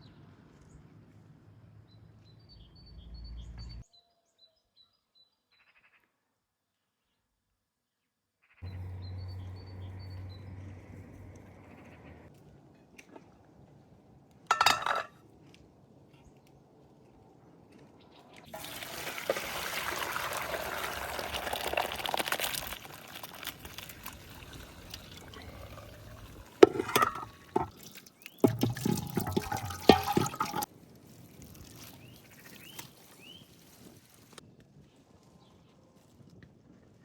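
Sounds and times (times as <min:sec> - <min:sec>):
water running: 0:18.6 - 0:30.7.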